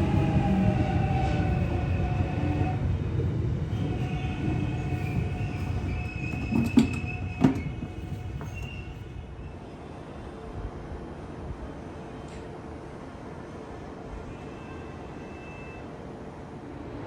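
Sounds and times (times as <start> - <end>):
train rumbling on tracks: 0.0 - 17.0.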